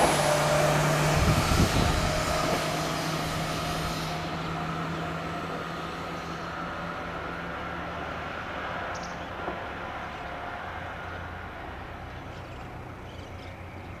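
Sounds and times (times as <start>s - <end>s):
electric train pulling away: 0.0s - 14.0s
steady train whine: 0.0s - 14.0s.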